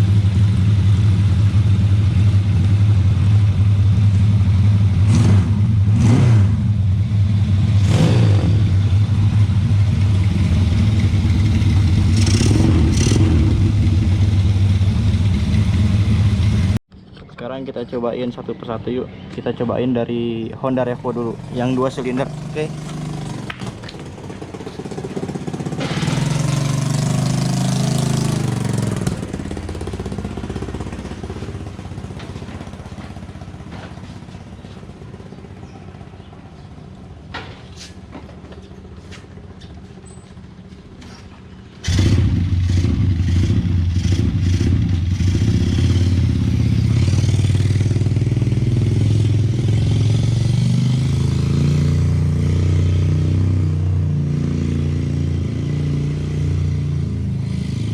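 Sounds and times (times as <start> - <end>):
motorcycle engine running: 0.0 - 16.8, 20.8 - 37.2, 38.3 - 57.9.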